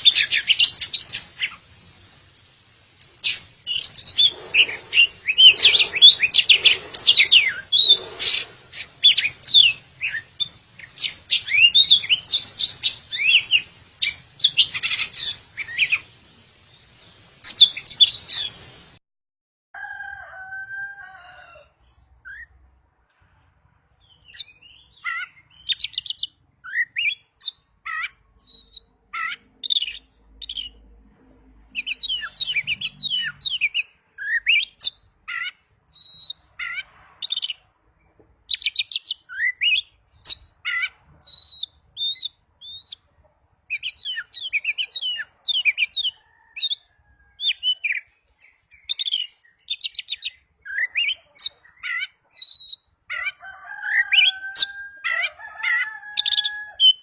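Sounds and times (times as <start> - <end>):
bird singing whistled song: 0.0 - 2.2, 3.2 - 16.1, 17.4 - 18.9, 24.1 - 30.7, 31.8 - 37.6, 38.5 - 43.0, 43.7 - 46.8, 47.4 - 52.9.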